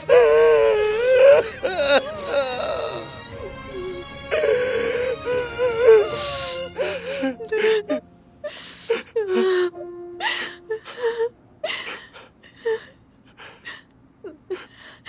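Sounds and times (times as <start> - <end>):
person crying: 0.0 - 12.9.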